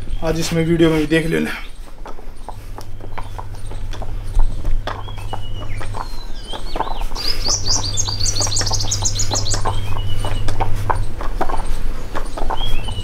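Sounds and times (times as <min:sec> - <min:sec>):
birds chirping and calling: 0:00.0 - 0:13.0
steady low hum: 0:00.0 - 0:13.0
bird gliding whistles: 0:04.4 - 0:13.0.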